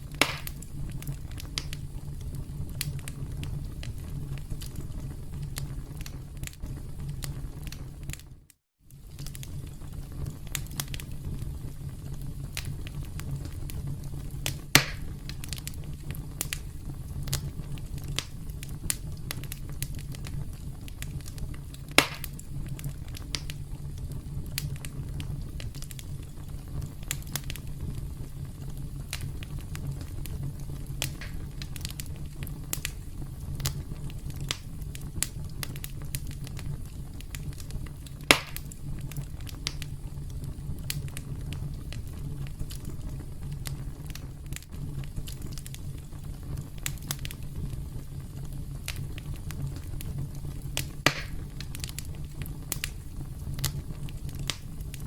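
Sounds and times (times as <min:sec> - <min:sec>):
campfire crackling: 0:00.0 - 0:55.0
loud fire pops: 0:00.0 - 0:55.0.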